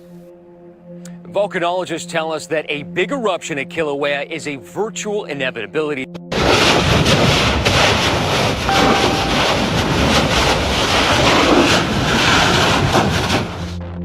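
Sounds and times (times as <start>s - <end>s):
lava fissure roaring: 6.4s - 8.7s.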